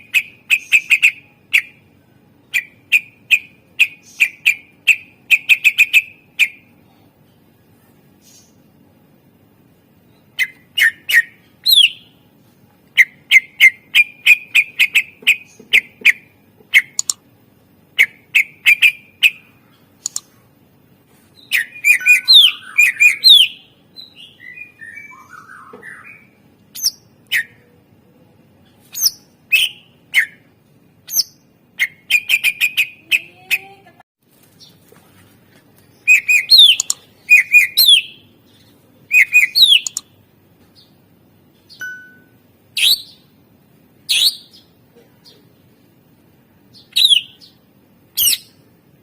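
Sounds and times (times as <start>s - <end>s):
bird singing: 0.0s - 6.7s, 10.0s - 12.2s, 12.9s - 17.2s, 17.9s - 20.2s, 21.4s - 27.9s, 36.0s - 41.0s, 46.7s - 47.6s.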